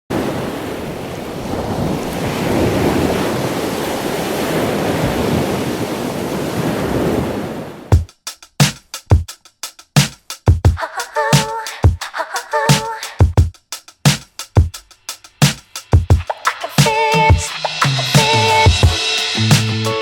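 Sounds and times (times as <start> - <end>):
waves rushing: 0.1 - 8.0, 16.2 - 19.8
wind buffeting microphone: 0.2 - 7.9
music drum hit: 15.4 - 20.0.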